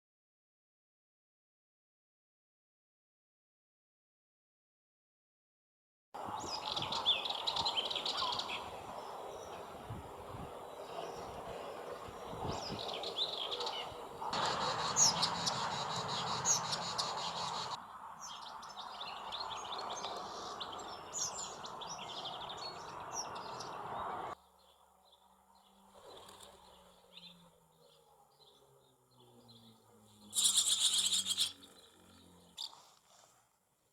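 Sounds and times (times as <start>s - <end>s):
birds chirping and trilling: 6.2s - 32.9s
outdoor background noise: 6.2s - 33.9s.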